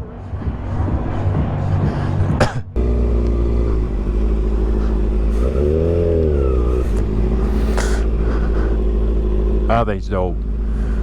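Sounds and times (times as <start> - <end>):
vehicle engine idling and revving: 0.0 - 11.0.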